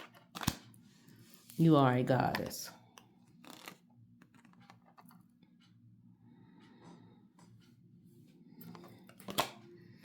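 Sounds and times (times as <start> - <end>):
cards rustling and clicking: 3.4 - 4.8.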